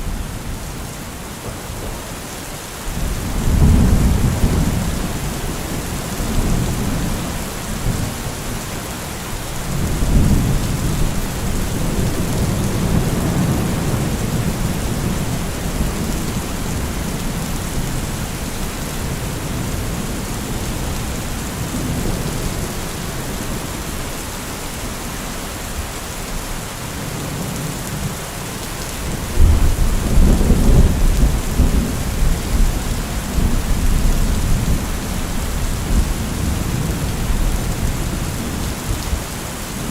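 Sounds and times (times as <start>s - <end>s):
steady rain falling: 0.0s - 39.9s
rolling thunder: 2.9s - 8.3s, 29.2s - 39.2s.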